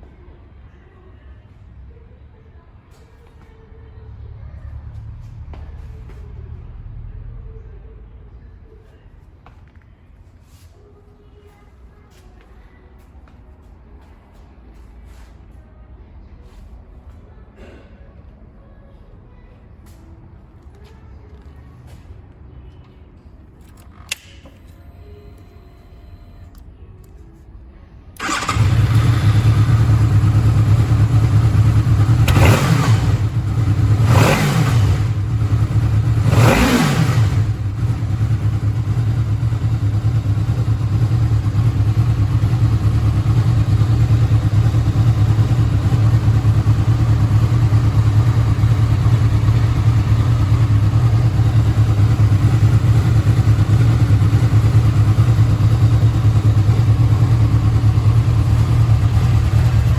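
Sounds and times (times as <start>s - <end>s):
motorcycle engine idling and revving: 28.2s - 59.9s.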